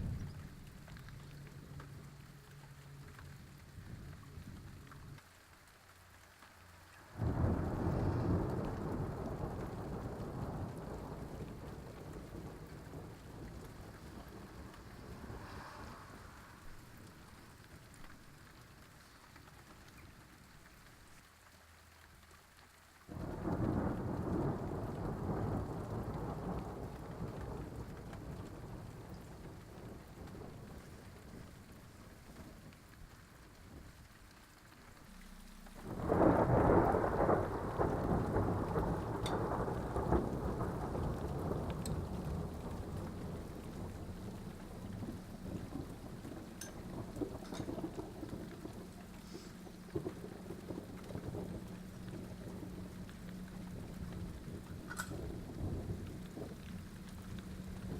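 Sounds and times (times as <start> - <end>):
thunder rumbling: 0.0 - 5.2, 7.0 - 21.2, 23.1 - 57.9
falling rain: 0.0 - 57.9.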